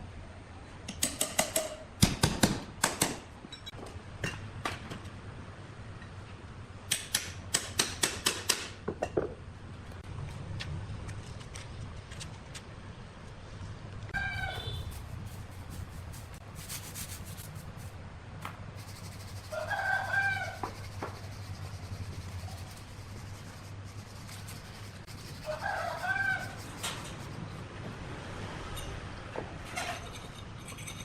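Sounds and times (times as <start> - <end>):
rooster crowing: 19.4 - 20.8, 25.4 - 26.6
steady low hum: 20.6 - 25.5.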